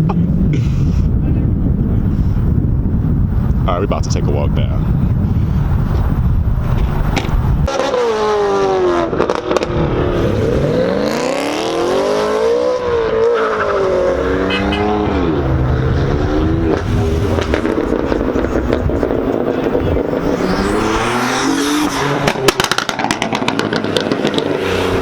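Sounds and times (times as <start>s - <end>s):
wind rumble on microphone: 0.0s - 7.7s, 14.9s - 25.0s
car engine revving: 5.3s - 25.0s.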